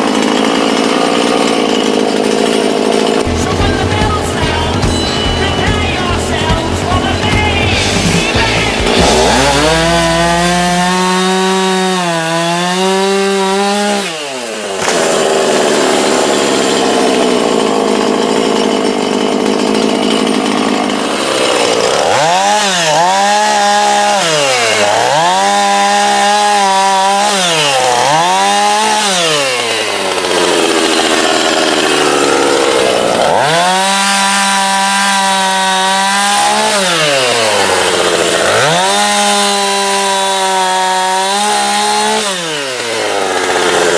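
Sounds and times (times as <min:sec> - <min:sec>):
chainsaw cutting a branch: 0:00.0 - 0:43.9.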